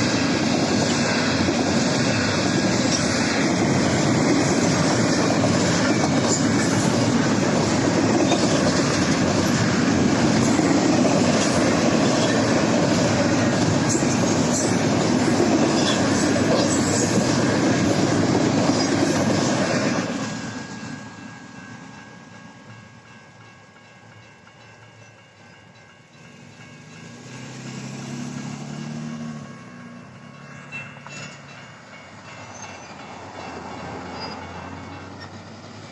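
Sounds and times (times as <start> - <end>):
wheels clacking over rail joints: 0.0 - 21.0
freight train rolling past: 0.0 - 35.9.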